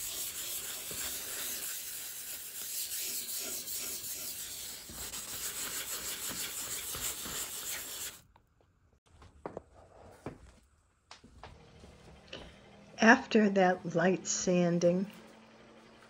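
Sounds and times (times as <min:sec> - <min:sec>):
sandpaper rubbing on wood: 0:00.0 - 0:08.2.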